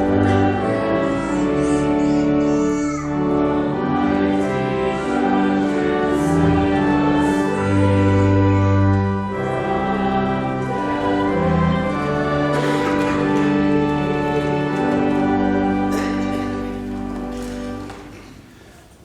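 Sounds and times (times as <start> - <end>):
voices singing a hymn: 0.0 - 2.4, 3.2 - 18.0
church organ chords: 0.0 - 18.5.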